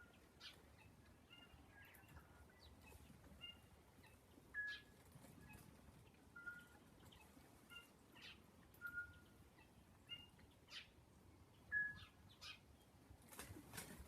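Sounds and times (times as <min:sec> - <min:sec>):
birds whistling: 0:00.0 - 0:05.6, 0:06.4 - 0:09.4, 0:11.6 - 0:12.7.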